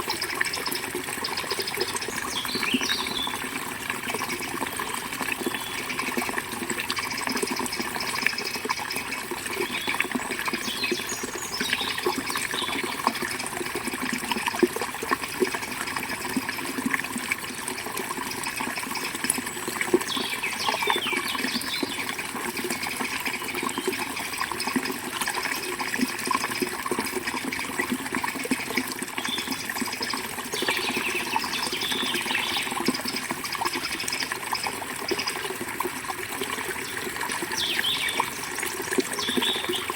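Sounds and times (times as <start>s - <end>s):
river water flowing: 0.0s - 39.9s
small birds chirping: 0.2s - 3.5s, 9.5s - 13.1s, 19.9s - 22.1s, 29.2s - 34.3s, 36.8s - 38.6s, 39.2s - 39.9s.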